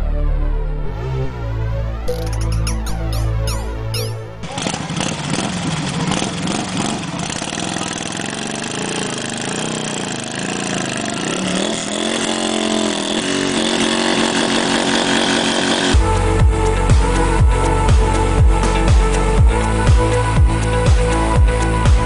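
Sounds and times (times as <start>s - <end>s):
motorcycle engine revving: 0.8s - 17.2s.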